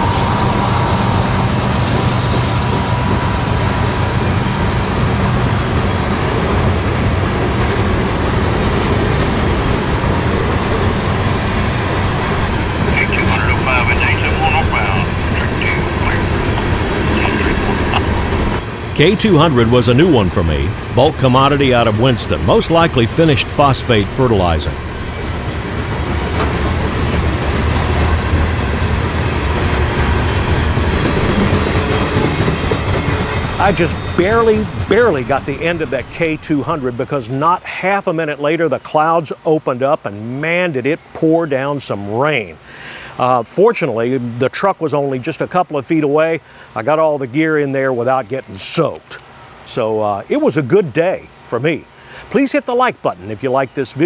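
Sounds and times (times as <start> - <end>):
freight train wheels rolling: 0.0 - 37.0
high wheel squeal: 30.3 - 35.2.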